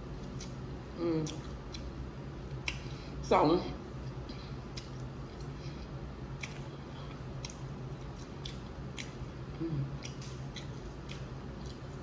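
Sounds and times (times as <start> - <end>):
wet chewing: 6.4 - 9.3, 9.9 - 12.0.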